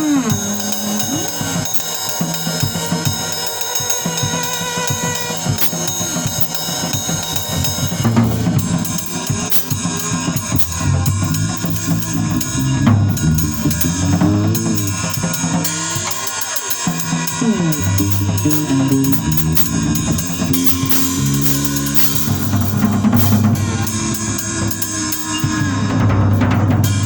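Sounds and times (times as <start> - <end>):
drum kit playing: 0.0 - 27.0
bass guitar sliding notes: 6.9 - 16.0, 17.1 - 27.0.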